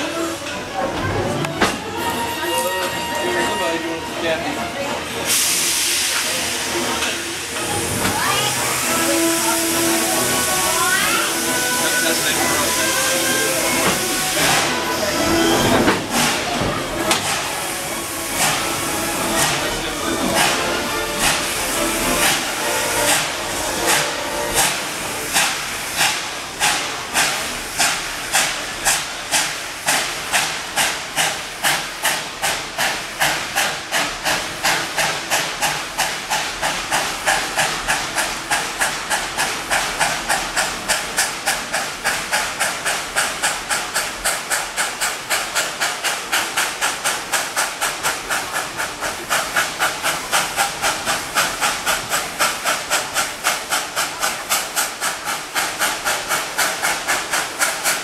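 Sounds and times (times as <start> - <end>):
steam locomotive chuffing: 0.0 - 58.0.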